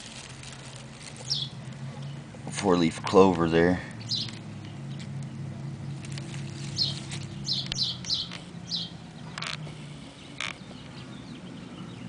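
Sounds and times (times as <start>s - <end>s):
bird chirping: 1.1s - 2.4s, 4.0s - 12.0s.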